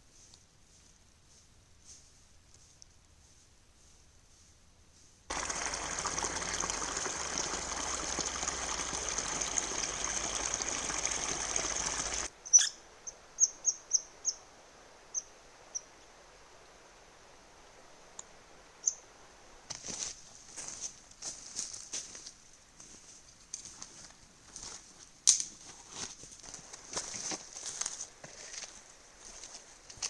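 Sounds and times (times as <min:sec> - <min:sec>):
bird chirping: 0:08.7 - 0:14.4.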